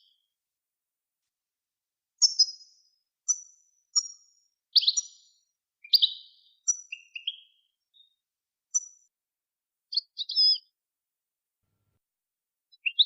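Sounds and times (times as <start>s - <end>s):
songbird chirps and trills: 2.2s - 9.1s, 9.9s - 10.8s, 12.7s - 13.0s.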